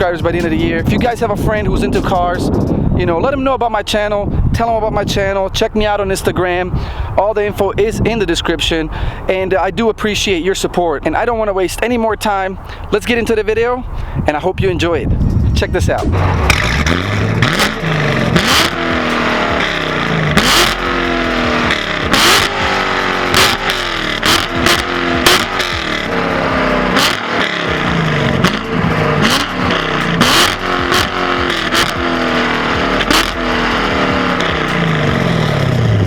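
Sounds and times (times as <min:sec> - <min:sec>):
sharp exhaust cracks: 0:00.0 - 0:03.2, 0:15.1 - 0:36.0
car engine accelerating: 0:16.0 - 0:36.0.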